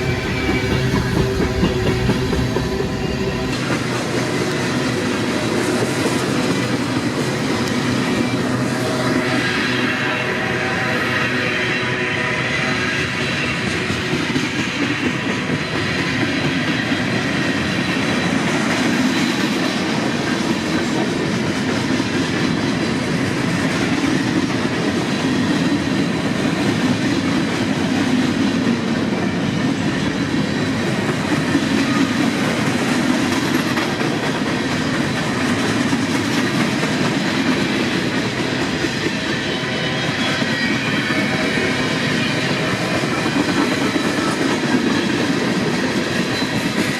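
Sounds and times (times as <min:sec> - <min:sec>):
freight train wheels clattering: 0:00.0 - 0:08.0.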